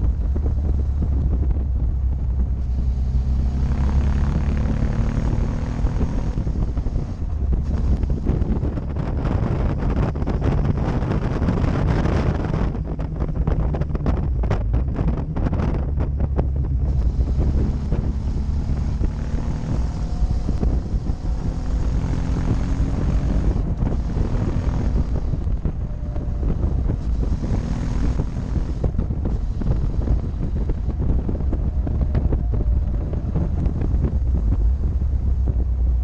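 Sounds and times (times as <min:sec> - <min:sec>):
motorcycle engine running: 0:00.0 - 0:36.0
wind buffeting microphone: 0:00.0 - 0:36.0.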